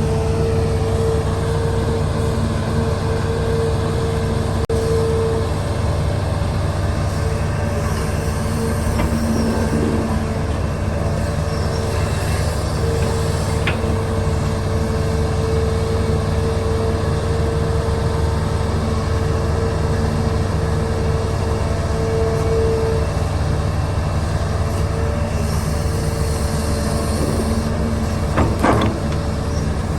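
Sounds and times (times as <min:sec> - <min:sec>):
diesel engine rumbling with whine: 0:00.0 - 0:29.9.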